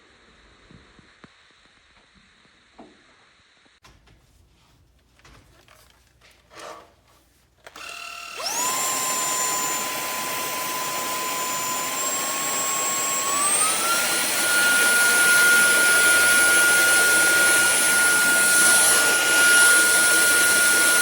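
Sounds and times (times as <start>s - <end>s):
vacuum cleaner motor whining: 7.7s - 21.0s.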